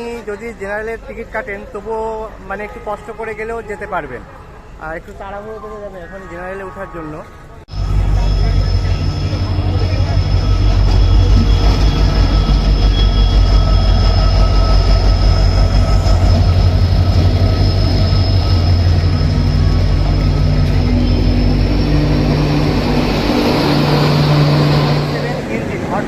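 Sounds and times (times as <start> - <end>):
wheels squealing: 7.4 - 26.0
train rumbling: 7.7 - 26.0.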